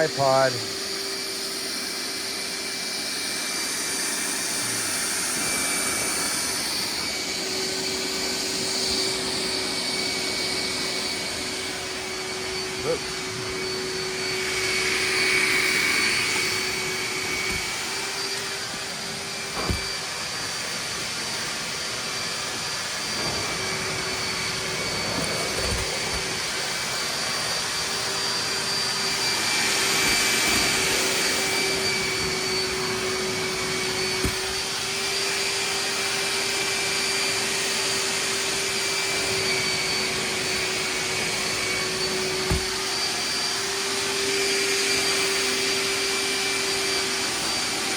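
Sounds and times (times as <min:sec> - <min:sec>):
wet dry vacuum sucking water: 0:00.0 - 0:47.9.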